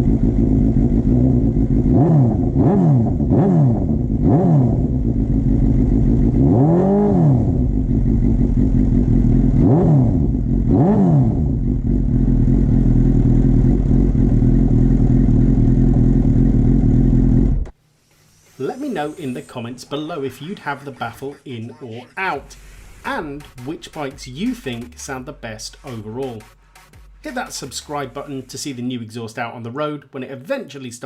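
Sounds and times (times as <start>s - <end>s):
motorcycle engine idling: 0.0s - 3.3s, 4.8s - 10.7s, 11.3s - 17.6s
motorcycle engine revving: 0.0s - 17.7s.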